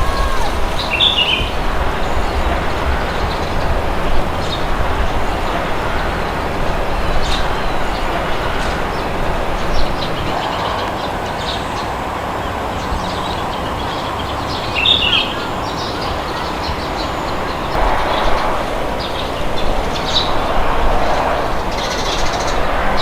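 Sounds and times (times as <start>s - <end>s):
birds chirping: 0.0s - 23.0s
wind blowing: 0.0s - 23.0s.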